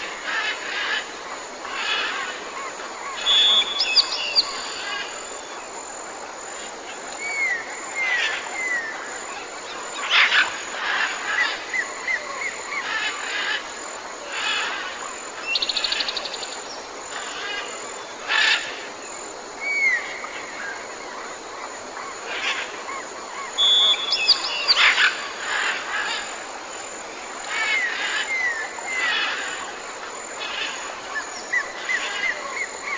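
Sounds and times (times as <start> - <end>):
steady high-pitched hum: 0.0 - 32.9
wild birds calling and singing: 0.0 - 32.9
bird trill: 3.2 - 4.8, 23.6 - 25.1.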